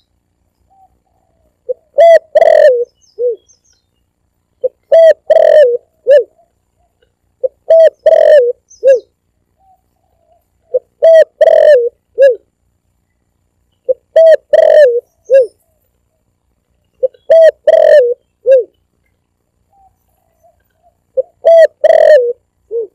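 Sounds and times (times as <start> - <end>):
dove cooing: 0.7 - 3.5, 4.6 - 12.5, 13.9 - 15.8, 17.0 - 18.8, 19.7 - 22.9.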